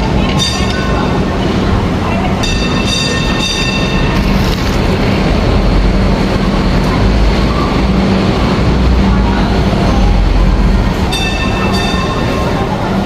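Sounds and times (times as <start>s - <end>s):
passenger train rumbling: 0.0s - 13.0s.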